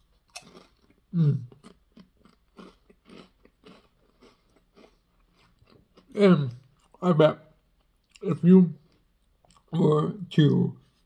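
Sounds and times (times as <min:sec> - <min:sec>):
person chewing potato chips: 0:00.0 - 0:07.0.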